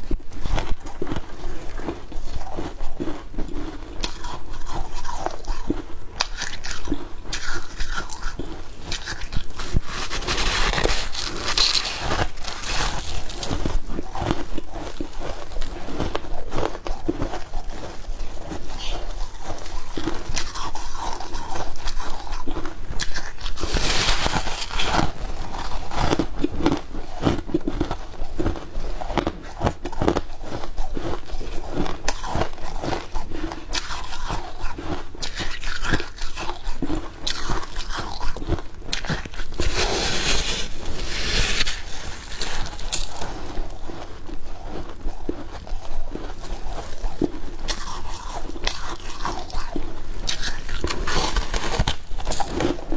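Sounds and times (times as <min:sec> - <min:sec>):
chewing crunchy frost: 0:00.0 - 0:52.9.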